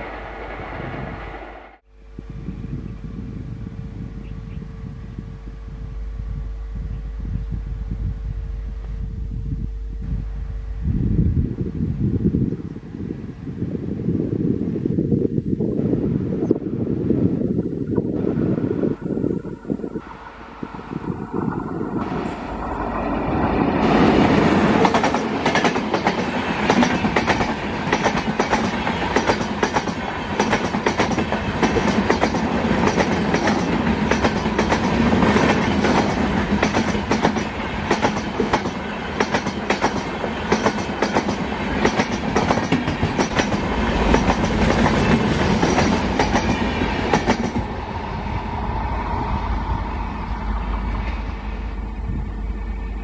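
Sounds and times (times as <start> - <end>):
train passing at speed: 0.0 - 4.1, 15.6 - 53.0
train wheels clicking over rail joints: 22.8 - 47.7.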